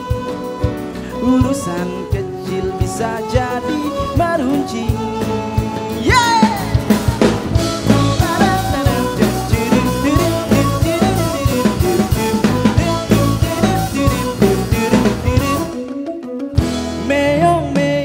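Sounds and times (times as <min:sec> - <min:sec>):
fusion band playing: 0:00.0 - 0:18.0
drum kit strikes: 0:06.0 - 0:15.7.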